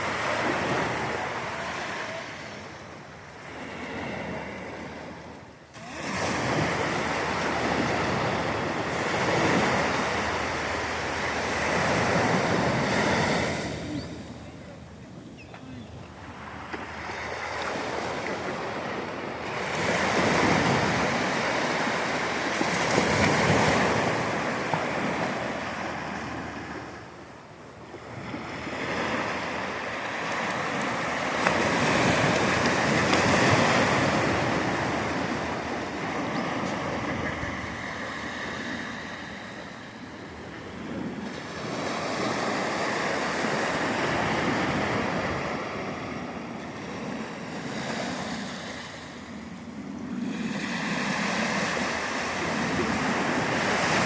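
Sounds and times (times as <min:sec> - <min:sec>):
waves breaking on shore: 0:00.0 - 0:54.0.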